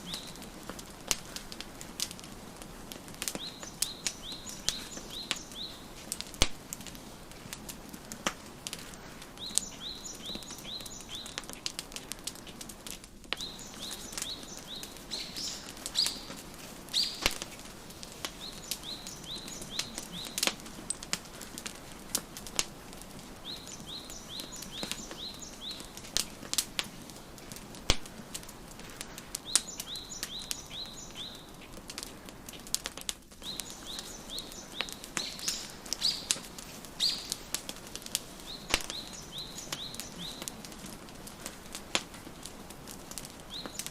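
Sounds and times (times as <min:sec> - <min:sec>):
songbird chirping: 0:00.0 - 0:00.6, 0:03.2 - 0:06.3, 0:09.3 - 0:11.8, 0:13.3 - 0:21.4, 0:23.2 - 0:26.5, 0:29.0 - 0:31.8, 0:33.4 - 0:40.8, 0:43.4 - 0:43.9
wood fire crackling: 0:00.0 - 0:43.9.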